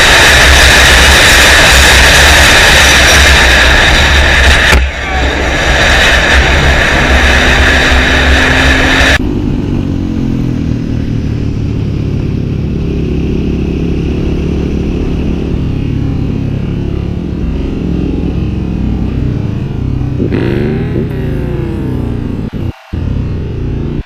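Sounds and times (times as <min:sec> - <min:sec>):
wind rush over microphone: 0:00.0 - 0:09.8
motorcycle engine: 0:00.0 - 0:24.0.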